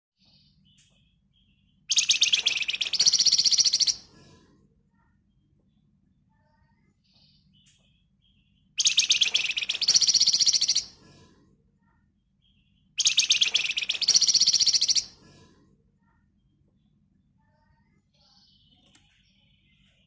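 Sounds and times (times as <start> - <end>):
songbird singing rapid trill: 0.7 - 4.0, 8.2 - 10.9, 12.5 - 15.1.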